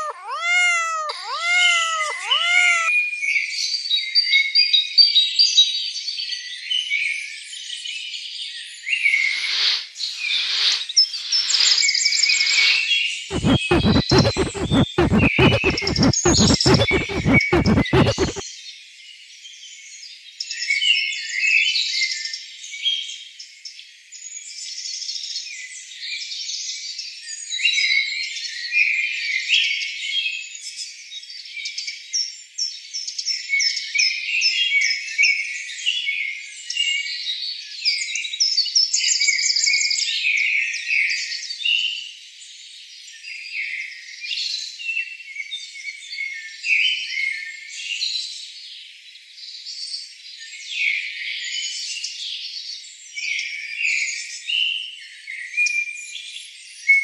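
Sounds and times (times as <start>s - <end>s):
small birds chirping: 0.0s - 2.9s, 9.3s - 18.4s
short falling whistles: 9.2s - 12.8s.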